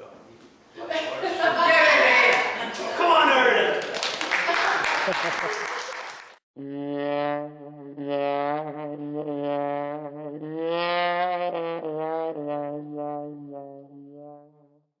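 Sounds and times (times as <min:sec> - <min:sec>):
wind instrument melody: 0:06.6 - 0:14.6.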